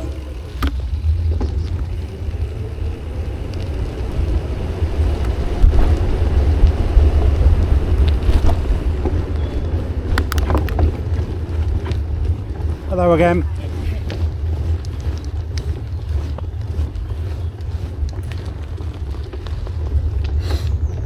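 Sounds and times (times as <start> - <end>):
wind buffeting microphone: 0.0 - 21.0
sharp clicks: 10.1 - 11.2.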